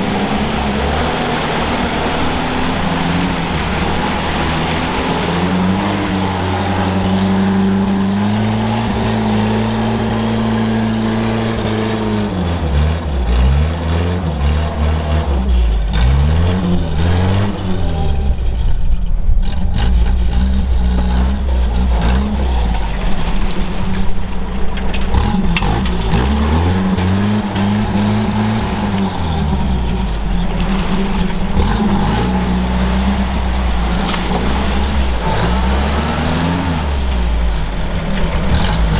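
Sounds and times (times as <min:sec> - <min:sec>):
off-road vehicle engine revving: 0:00.0 - 0:38.9.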